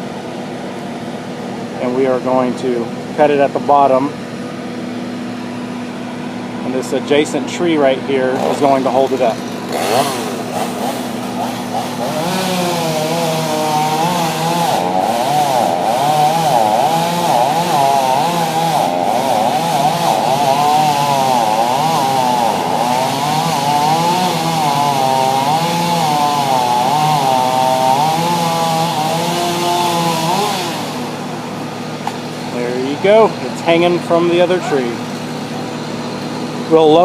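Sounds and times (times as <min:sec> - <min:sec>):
chainsaw cutting tree: 0:07.7 - 0:37.0.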